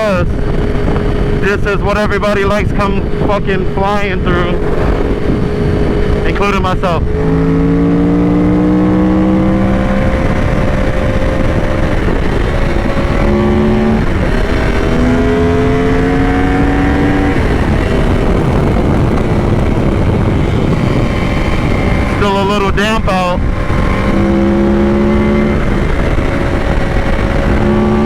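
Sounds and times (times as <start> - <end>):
heavy wind noise: 0.0 - 28.0
motorcycle engine accelerating: 0.0 - 28.0.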